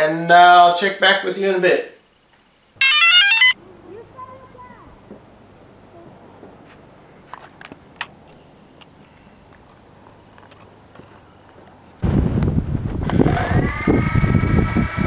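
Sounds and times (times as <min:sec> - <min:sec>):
low background hiss: 0:00.0 - 0:02.8.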